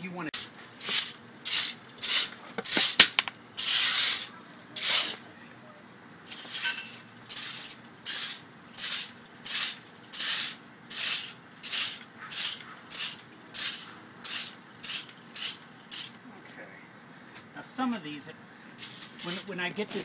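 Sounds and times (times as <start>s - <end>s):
sand scraping across glass: 0.4s - 3.0s, 3.6s - 5.2s, 6.3s - 16.2s, 18.8s - 19.6s.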